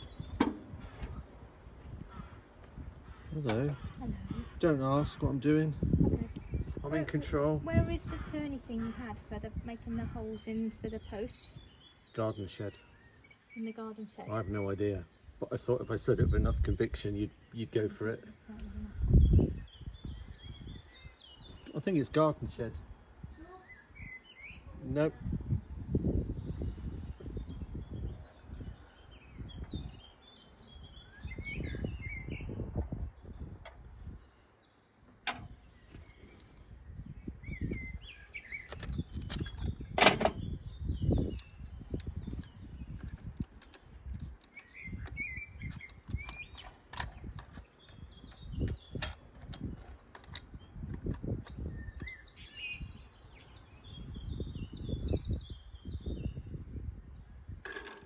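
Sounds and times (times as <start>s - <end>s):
small birds chirping: 0.0s - 58.0s
sharp clicks and knocks: 35.2s - 35.6s.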